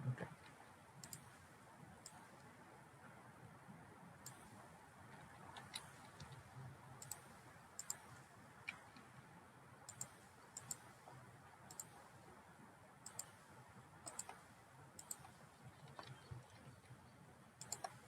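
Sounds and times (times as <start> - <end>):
low steady hum: 0.0 - 18.0
computer mouse clicks: 0.4 - 1.4, 2.0 - 2.5, 4.2 - 9.1, 9.9 - 11.0, 11.7 - 12.0, 13.0 - 13.4, 14.0 - 17.0, 17.6 - 18.0.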